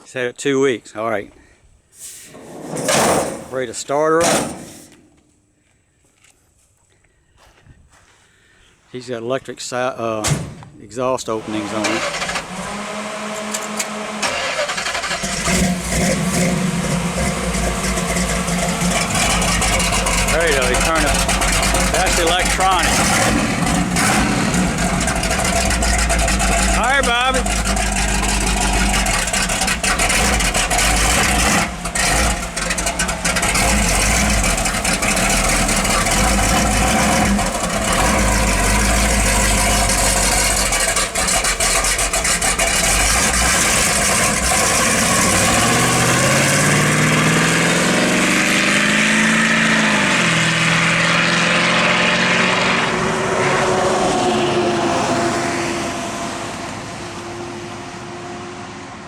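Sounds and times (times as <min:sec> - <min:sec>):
loud engine rumble through open exhaust: 0:11.4 - 0:53.4.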